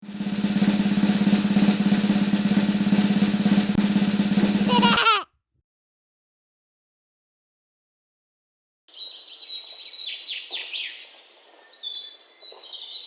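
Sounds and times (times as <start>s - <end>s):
snare drum roll: 0.0s - 5.2s.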